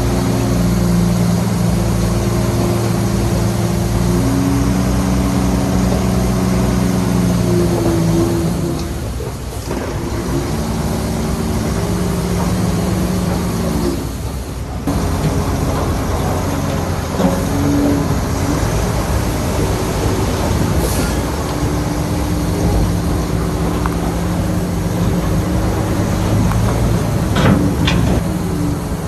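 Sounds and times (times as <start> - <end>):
bulldozer diesel engine: 0.0 - 29.0
metal clatter: 20.7 - 28.5.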